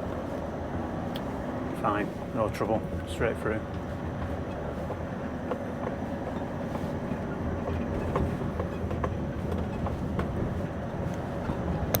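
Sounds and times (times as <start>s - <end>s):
lorry engine and road rumble: 0.0s - 12.0s
clicks and rattles in cab: 3.7s - 12.0s.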